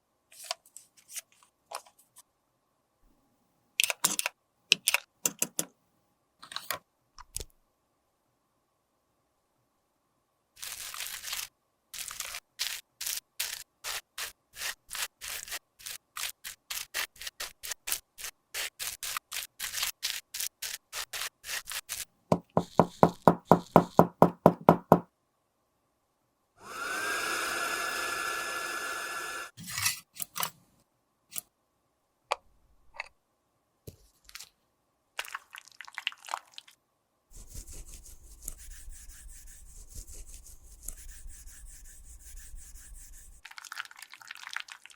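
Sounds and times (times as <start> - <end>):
small motor whirring: 26.6 - 29.5.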